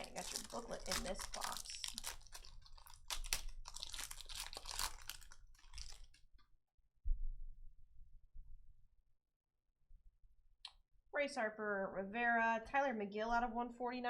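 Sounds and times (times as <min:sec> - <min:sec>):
cards being handled: 0:00.0 - 0:06.2
wrapper crinkling and tearing: 0:00.0 - 0:06.3.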